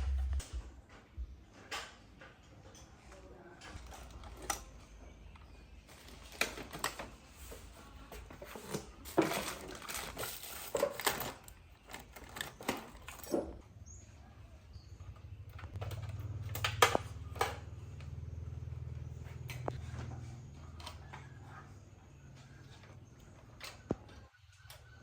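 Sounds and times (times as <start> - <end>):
low hum: 0.0 - 1.4.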